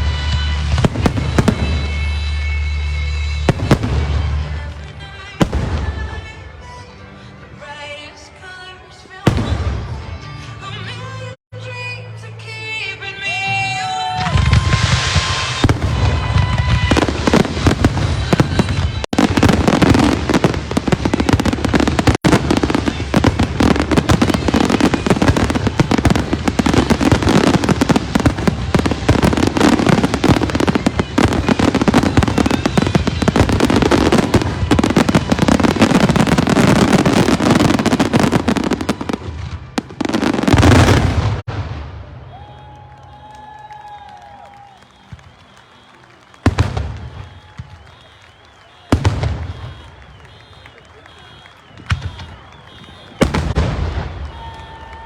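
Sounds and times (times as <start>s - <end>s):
fireworks bursting and crackling: 0.0s - 6.9s, 9.2s - 11.2s, 13.4s - 55.0s
music playing: 0.0s - 13.8s, 15.6s - 40.5s.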